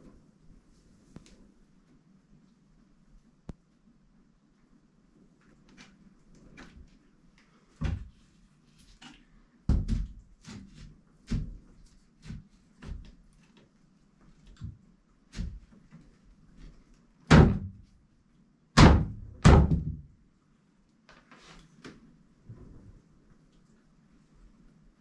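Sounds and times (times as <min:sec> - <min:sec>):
knocks and thumps indoors: 0:07.8 - 0:08.2, 0:09.7 - 0:13.2, 0:17.3 - 0:17.9, 0:18.8 - 0:20.2.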